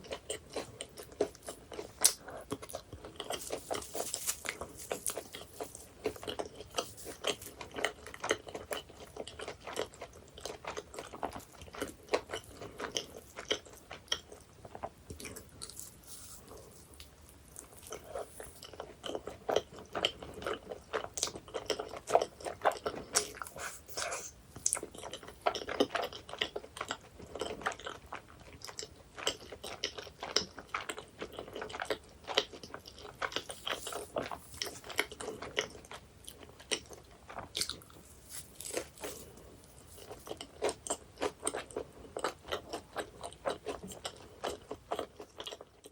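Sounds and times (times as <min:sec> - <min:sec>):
crunchy pastry chewing: 0:00.0 - 0:45.9.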